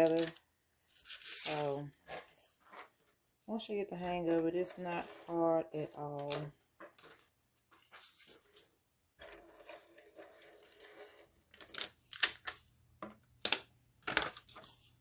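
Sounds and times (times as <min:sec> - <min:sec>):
paper rustling: 0:06.2 - 0:08.8.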